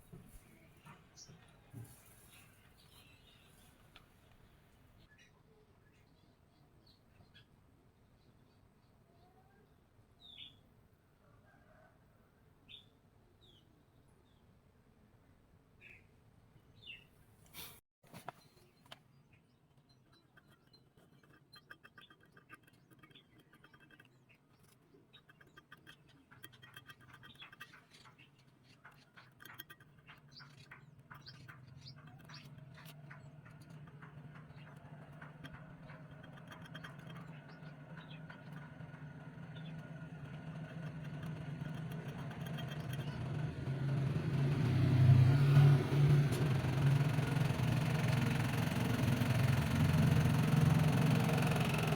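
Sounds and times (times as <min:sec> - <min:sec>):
motor humming: 0:31.6 - 0:51.9.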